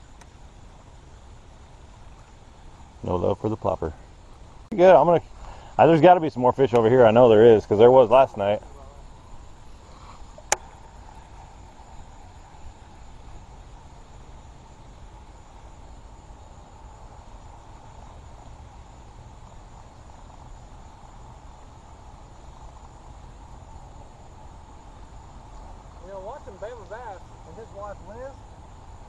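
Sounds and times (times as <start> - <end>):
insect drone: 0.0 - 29.0.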